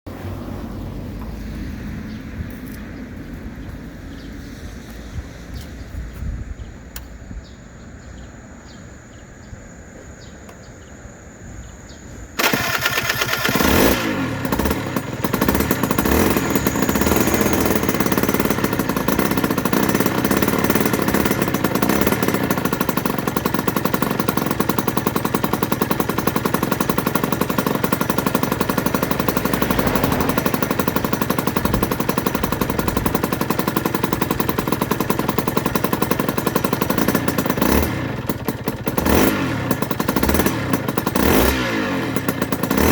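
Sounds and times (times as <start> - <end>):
two-stroke engine starting and idling: 12.4 - 42.9.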